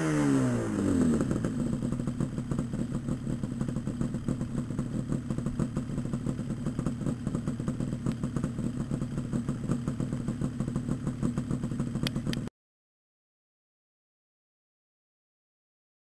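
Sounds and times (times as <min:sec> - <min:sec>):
two-stroke motorcycle idling: 0:00.0 - 0:12.5.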